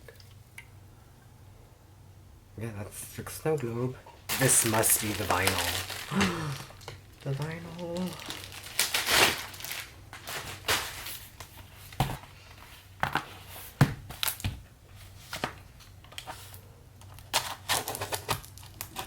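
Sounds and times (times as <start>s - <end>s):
packaging rustling: 4.3s - 19.0s.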